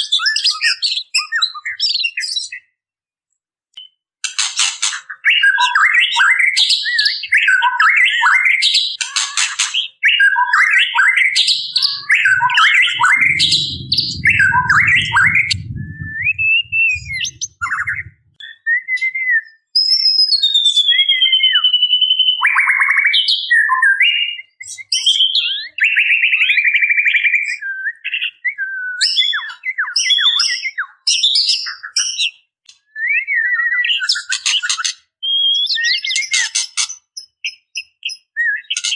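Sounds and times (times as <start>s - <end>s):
low rumbling noise: 11.5s - 18.4s.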